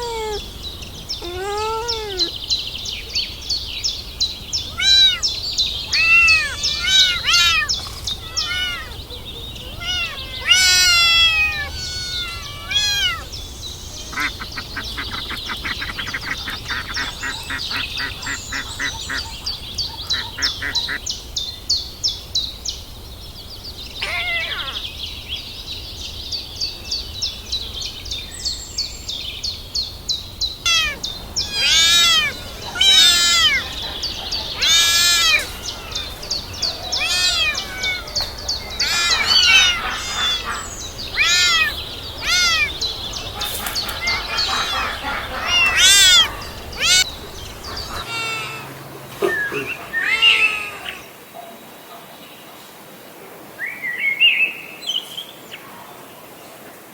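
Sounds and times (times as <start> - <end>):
kittens mewing: 0.0 - 0.5, 1.2 - 2.4, 4.6 - 21.0, 24.0 - 24.8, 30.6 - 51.1.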